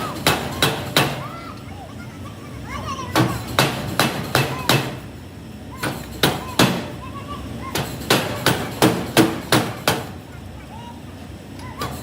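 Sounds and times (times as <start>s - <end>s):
hammer striking metal: 0.0s - 1.2s, 3.2s - 5.0s, 7.7s - 10.2s.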